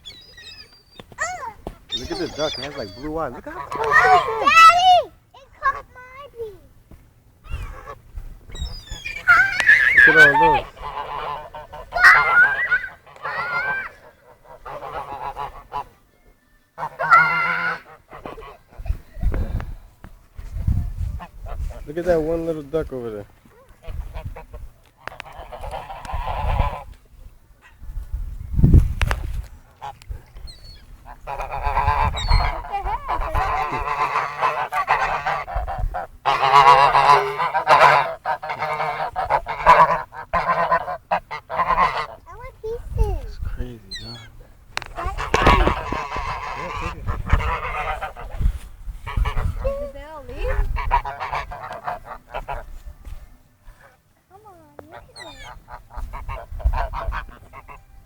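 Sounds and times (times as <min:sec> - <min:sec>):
waterfowl calling: 0:00.0 - 0:05.0, 0:07.4 - 0:16.0, 0:16.8 - 0:18.8, 0:23.8 - 0:26.9, 0:29.8 - 0:42.3, 0:43.9 - 0:52.8, 0:54.9 - 0:58.0
geese honking: 0:01.9 - 0:05.0, 0:07.5 - 0:16.0, 0:16.8 - 0:18.6, 0:23.9 - 0:26.9, 0:29.8 - 0:42.3, 0:43.9 - 0:52.7, 0:54.9 - 0:58.0.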